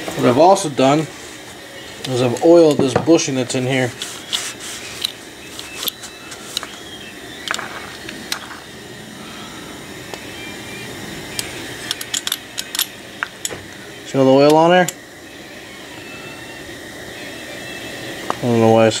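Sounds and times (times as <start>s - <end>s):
steady background hum: 0.0s - 19.0s
metal parts clicking and tapping: 11.4s - 13.6s.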